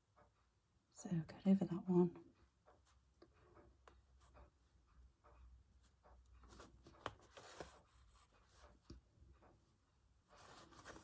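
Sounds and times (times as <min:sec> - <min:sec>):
needle and thread through fabric: 0:05.2 - 0:09.6, 0:10.3 - 0:11.0.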